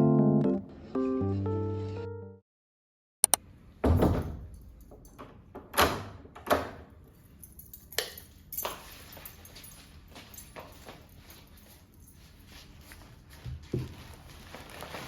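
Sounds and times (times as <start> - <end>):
rustling: 8.7 - 15.0.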